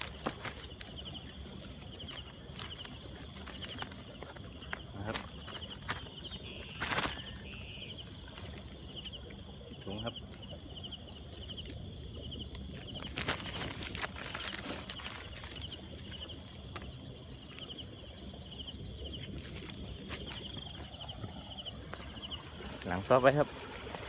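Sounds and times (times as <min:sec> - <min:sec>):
rustling handling noise: 0:00.0 - 0:08.8, 0:12.5 - 0:17.7, 0:19.1 - 0:22.6
insects chirping: 0:00.0 - 0:24.0.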